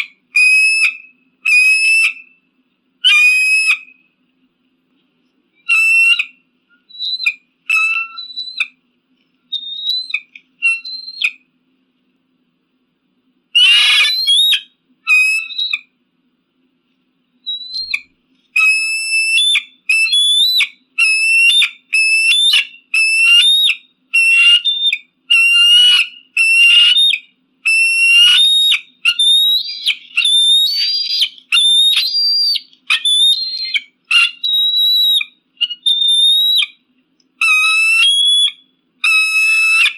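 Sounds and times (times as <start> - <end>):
eagle rasping call: 0.0 - 2.3, 3.0 - 4.0, 5.7 - 8.7, 13.6 - 15.8, 18.6 - 36.8, 37.4 - 39.9
eagle whistled calls: 0.0 - 2.4, 3.0 - 4.0, 5.6 - 8.8, 9.5 - 11.4, 13.6 - 15.9, 17.4 - 36.8, 37.4 - 39.9.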